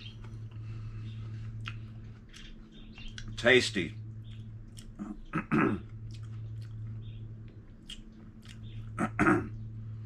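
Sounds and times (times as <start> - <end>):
steady low hum: 0.0 - 10.0
person chewing food: 1.3 - 3.3, 4.3 - 9.2.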